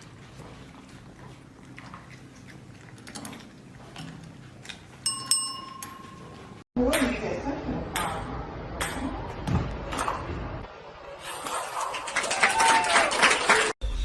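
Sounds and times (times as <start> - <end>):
short metallic ring: 5.1 - 6.6.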